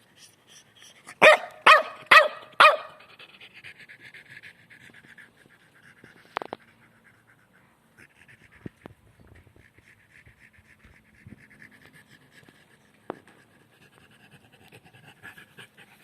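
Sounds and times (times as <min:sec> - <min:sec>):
dog barking: 0:01.2 - 0:03.1
dog panting: 0:03.0 - 0:16.0.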